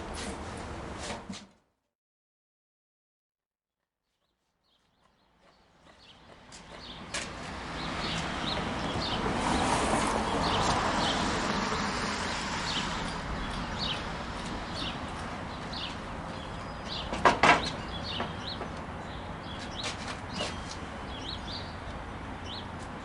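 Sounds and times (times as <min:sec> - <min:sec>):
bird chirping: 0:04.1 - 0:09.3, 0:12.6 - 0:22.7
sharp knocks: 0:17.0 - 0:18.8.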